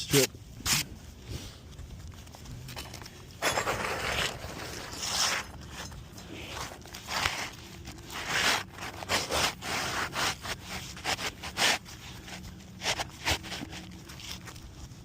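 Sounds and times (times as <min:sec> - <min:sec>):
scraping on roof shingles: 0:03.4 - 0:05.8.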